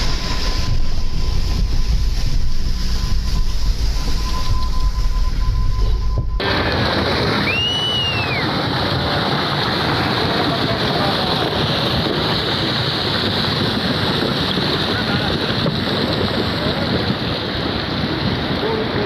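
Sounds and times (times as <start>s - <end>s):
sea water rushing: 0.0s - 5.7s, 6.4s - 19.0s
high whistling tone: 0.0s - 8.6s
wind rushing: 0.0s - 19.0s.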